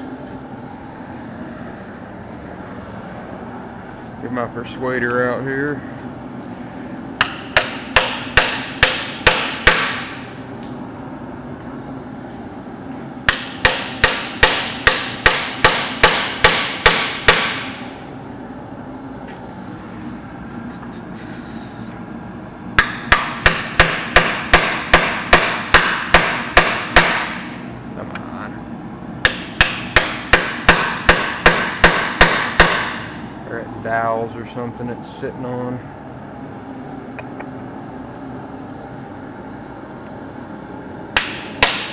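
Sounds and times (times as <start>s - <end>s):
hammer blows on metal housing: 13.3s - 17.8s.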